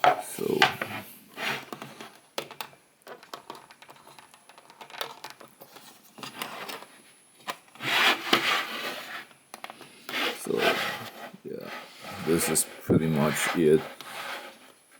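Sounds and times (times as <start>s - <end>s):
plastic rubbing and scraping: 0.0s - 14.9s
plastic parts clicking and tapping: 1.6s - 7.8s, 9.5s - 9.9s.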